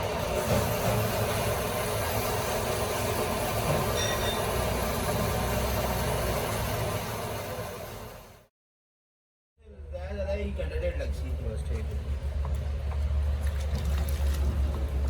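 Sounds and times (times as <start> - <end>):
steady mechanical rumble: 9.7 - 15.0.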